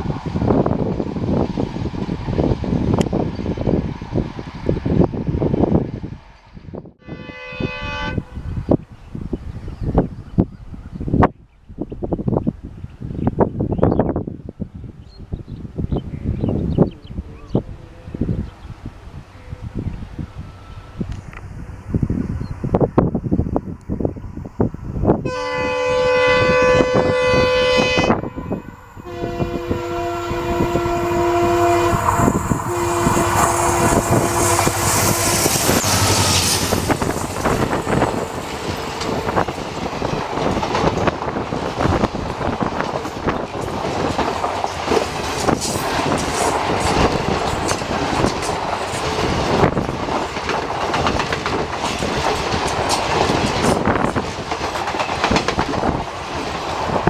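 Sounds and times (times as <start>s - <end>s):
train coaches rumbling past: 0.0s - 11.2s, 12.1s - 57.0s
locomotive horn blasts: 7.0s - 8.4s, 25.2s - 37.0s
wheels clacking over rail joints: 35.8s - 57.0s.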